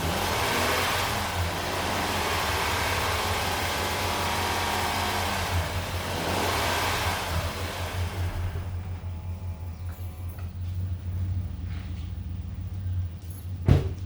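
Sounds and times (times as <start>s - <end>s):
car engine revving: 0.0s - 9.4s.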